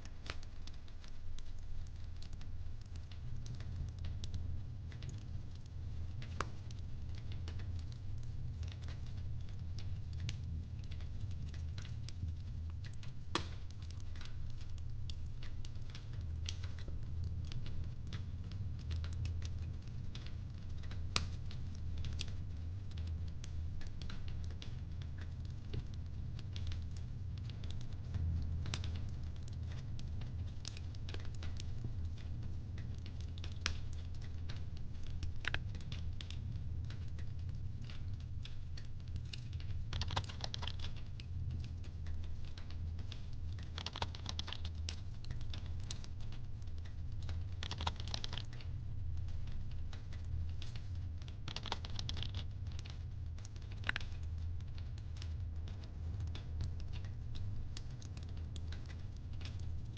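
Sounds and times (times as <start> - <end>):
low fire rumble: 0.0 - 59.9
wood fire crackling: 0.0 - 59.9.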